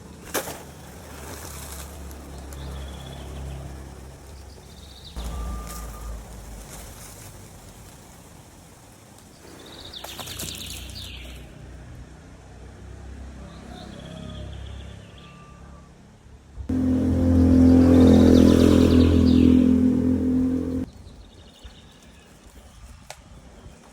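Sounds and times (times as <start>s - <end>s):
low steady rumble: 16.7s - 20.9s.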